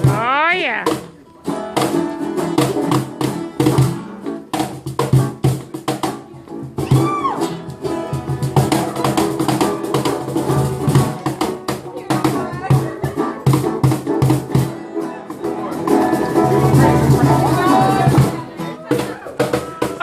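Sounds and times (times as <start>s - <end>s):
guitar and drums playing: 0.0s - 20.0s.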